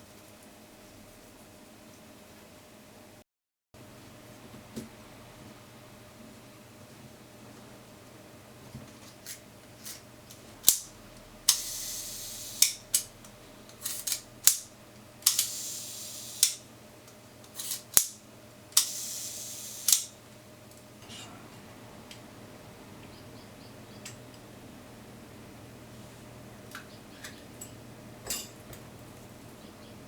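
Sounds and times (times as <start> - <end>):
shutter whirring buzz: 10.7 - 13.2, 13.8 - 16.7, 18.8 - 20.2
mechanical cocking clicks: 13.8 - 15.6, 19.8 - 20.1.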